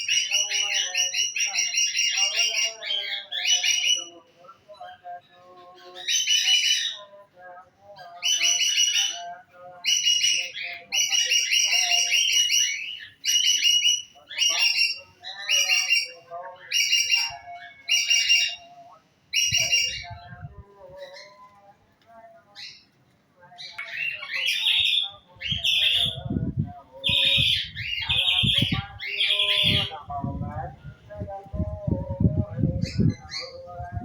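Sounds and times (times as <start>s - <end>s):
songbird trilling: 19.4s - 20.2s, 23.7s - 30.0s
soft low bird chirps: 23.7s - 30.0s.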